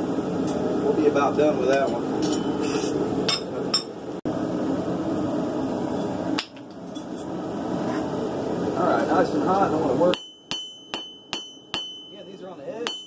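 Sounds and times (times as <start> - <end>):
hammer clinking on anvil: 10.1 - 13.0.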